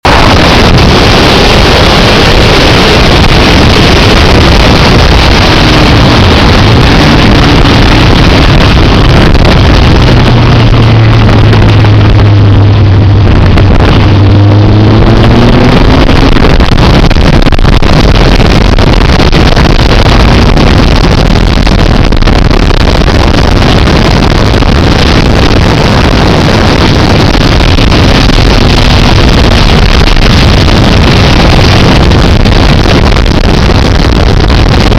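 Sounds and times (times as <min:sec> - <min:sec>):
motorcycle engine at speed: 0:00.0 - 0:34.9
wind rush on microphone: 0:00.0 - 0:34.9.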